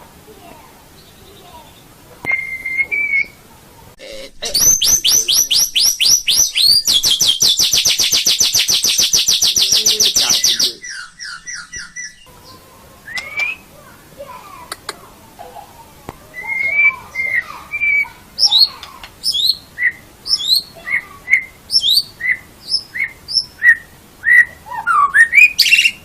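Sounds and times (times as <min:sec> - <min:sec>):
bird singing whistles and trills: 0:01.0 - 0:03.4, 0:04.6 - 0:12.3, 0:13.1 - 0:13.7, 0:16.4 - 0:26.0.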